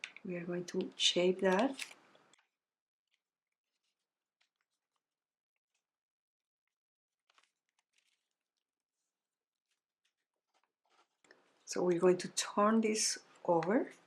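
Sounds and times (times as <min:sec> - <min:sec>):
paper crackling: 0:03.1 - 0:06.0, 0:06.6 - 0:11.6.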